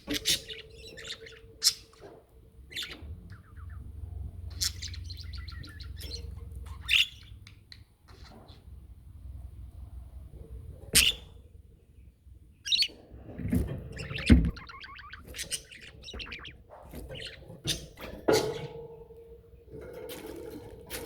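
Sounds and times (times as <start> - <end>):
budgerigars chirping and chattering: 0.0 - 8.7, 10.9 - 11.4, 12.6 - 18.8.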